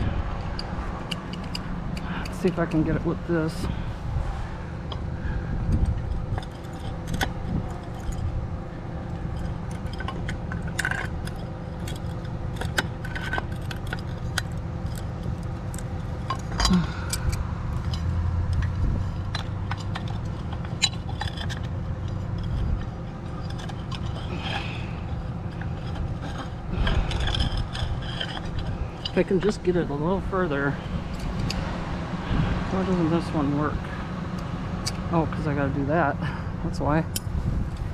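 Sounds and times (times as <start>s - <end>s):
steady low hum: 0.0s - 37.9s
metal tool clinking and scraping: 0.4s - 3.9s, 5.8s - 31.7s.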